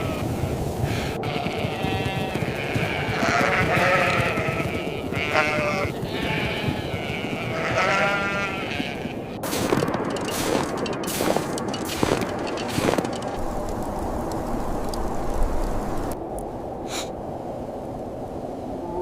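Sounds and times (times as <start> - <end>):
blizzard wind rushing: 0.0 - 19.0
goats bleating: 1.2 - 9.4.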